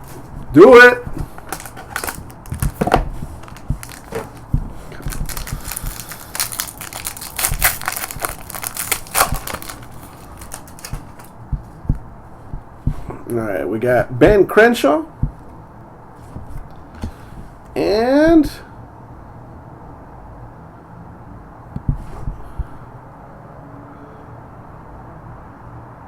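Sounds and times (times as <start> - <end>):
card pack wrapper crinkling: 1.0 - 11.3.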